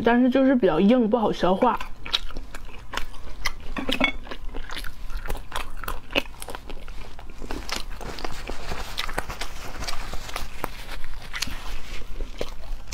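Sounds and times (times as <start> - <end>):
person chewing egg: 1.4 - 12.9.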